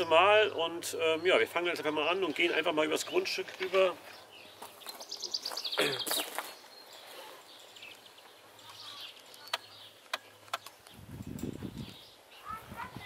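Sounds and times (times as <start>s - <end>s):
birds trilling and chirping: 0.0s - 13.0s
sharp clicks: 9.1s - 11.0s.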